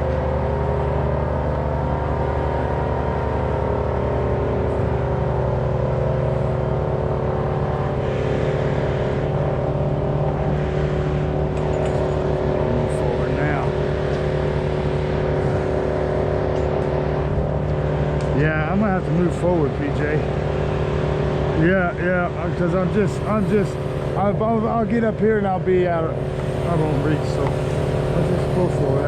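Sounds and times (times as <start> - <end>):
engine running steadily: 0.0 - 29.0.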